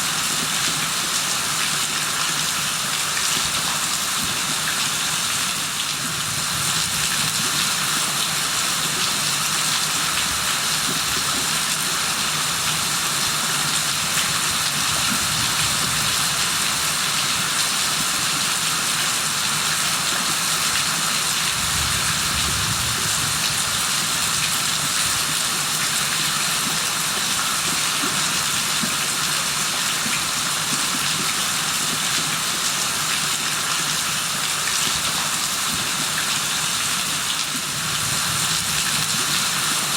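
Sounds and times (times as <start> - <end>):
steady rain hiss: 0.0 - 30.8, 31.4 - 39.9.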